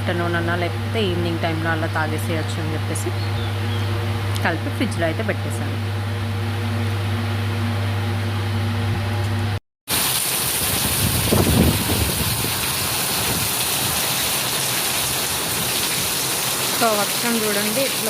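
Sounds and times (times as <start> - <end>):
low electrical hum: 0.0 - 18.0
heavy rain falling: 9.9 - 18.0.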